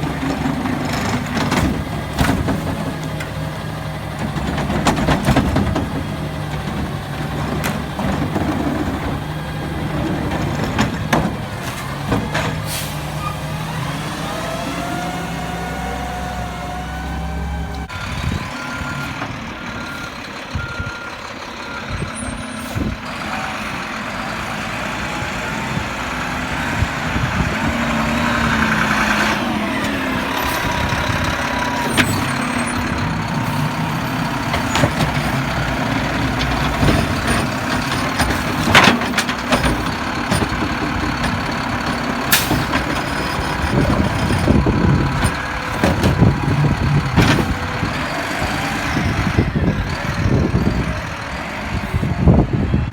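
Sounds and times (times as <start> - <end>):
garbage truck diesel engine: 0.0 - 52.9
reversing beeps: 18.0 - 22.6.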